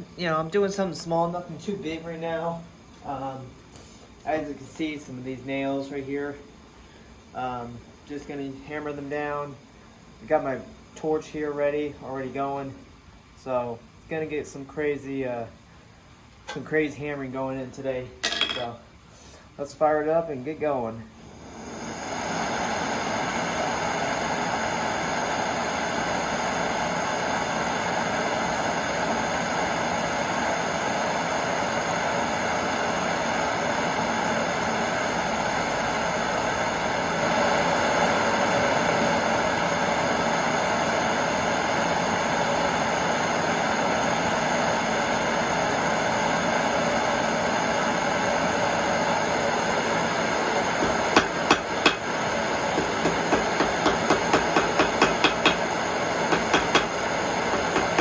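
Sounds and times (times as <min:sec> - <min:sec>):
gas torch roaring hiss: 0:21.2 - 0:58.0.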